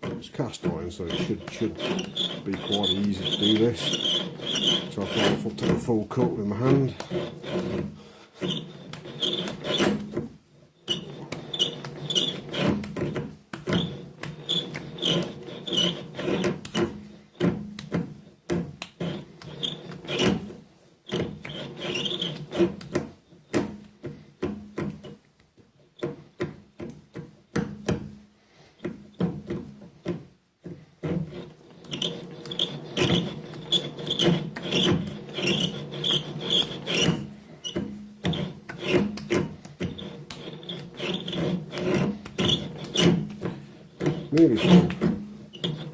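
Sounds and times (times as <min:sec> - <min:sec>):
lathe tool rasping on metal: 0:00.0 - 0:17.5, 0:18.9 - 0:22.9, 0:31.0 - 0:45.9.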